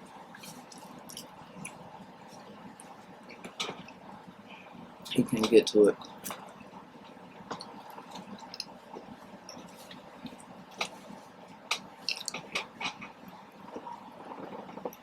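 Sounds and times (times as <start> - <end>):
mouth smacks and clicks: 7.5 - 8.8, 12.0 - 13.0
close chewing mouth sounds: 7.5 - 11.2, 12.0 - 13.0.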